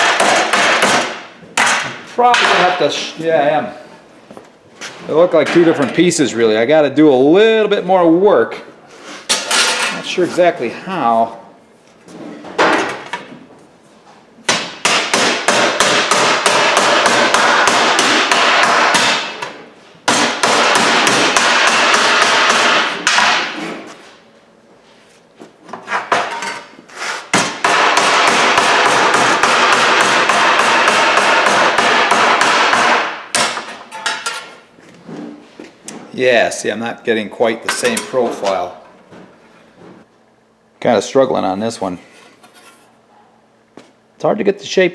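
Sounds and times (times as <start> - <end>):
hammer pounding steel panel: 0.0 - 2.8, 14.5 - 23.6, 27.2 - 34.3.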